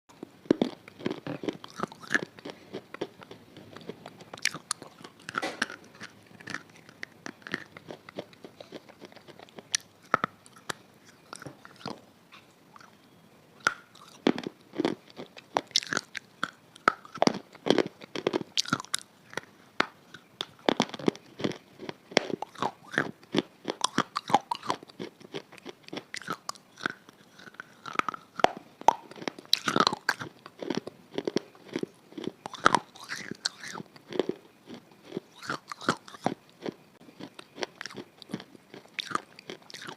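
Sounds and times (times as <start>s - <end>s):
crunchy food being chewed: 0.1s - 39.9s.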